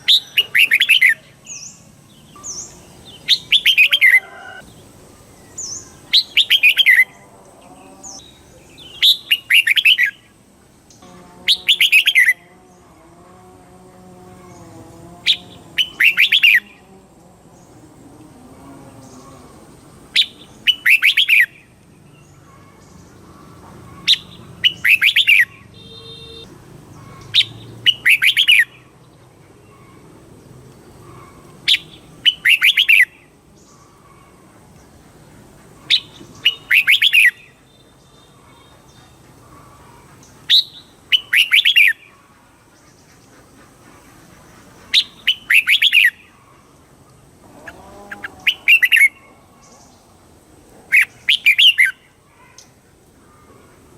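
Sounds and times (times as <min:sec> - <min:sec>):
bird song warbling phrase: 0:11.0 - 0:12.8.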